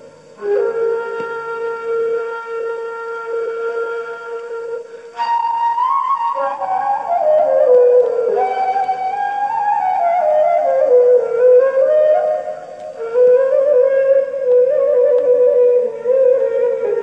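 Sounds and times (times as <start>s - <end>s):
end-blown flute melody: 0.0s - 17.0s.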